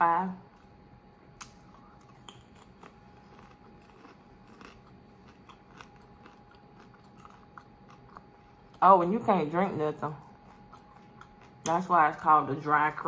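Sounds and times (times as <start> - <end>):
person crunching a rice cake: 1.4 - 8.7, 10.2 - 11.7.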